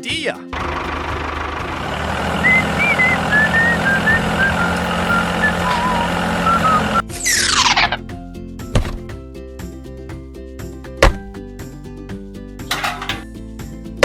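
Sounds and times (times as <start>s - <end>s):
engine-like running hum: 0.6s - 8.0s, 12.7s - 13.3s.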